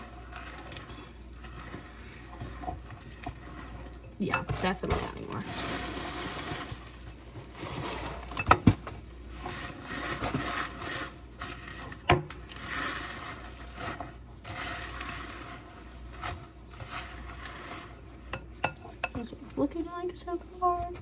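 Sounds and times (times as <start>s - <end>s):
spoon stirring cereal in bowl: 0.0s - 20.9s.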